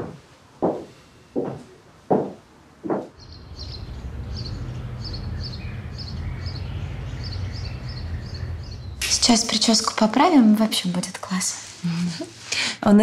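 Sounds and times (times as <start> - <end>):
footsteps: 0.0 - 3.2
small bird chirping: 3.2 - 9.9
steady low rumble: 3.2 - 11.3.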